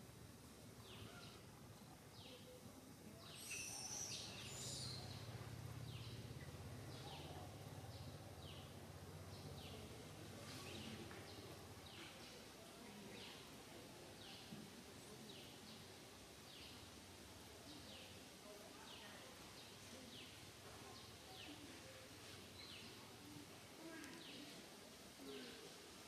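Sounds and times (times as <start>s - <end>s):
bird chirping: 3.2s - 5.3s.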